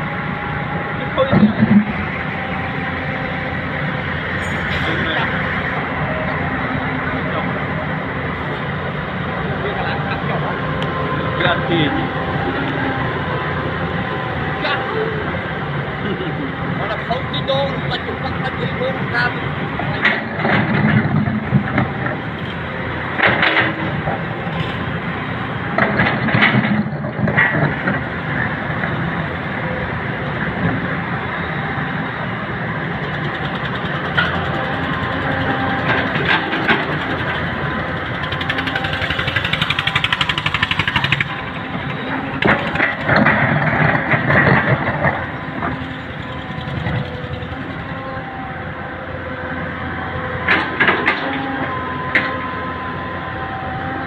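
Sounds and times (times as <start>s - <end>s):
heavy diesel machinery running: 0.0s - 54.0s
excavator clanking and scraping: 0.4s - 52.6s
fast even rattle: 38.2s - 41.6s.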